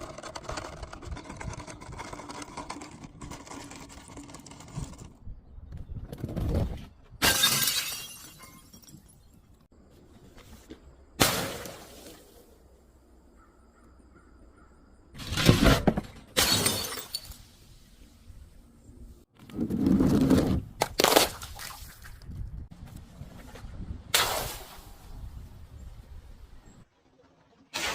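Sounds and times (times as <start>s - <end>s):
glass smashing: 7.2s - 9.3s, 15.2s - 17.5s.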